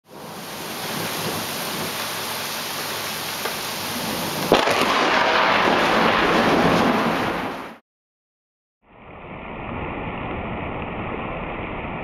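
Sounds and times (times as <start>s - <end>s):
steady rain falling: 0.1s - 7.8s
thunder crack and rumble: 4.0s - 7.8s.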